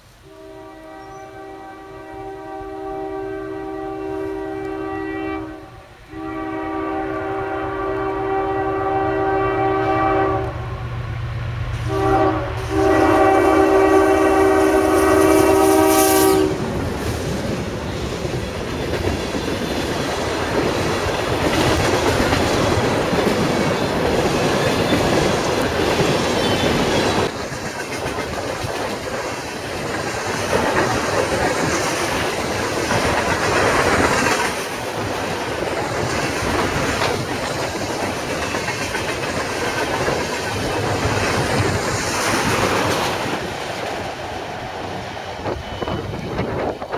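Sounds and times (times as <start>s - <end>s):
train wheels on rail: 0.0s - 46.9s
locomotive air horn: 0.2s - 10.8s, 11.8s - 16.8s.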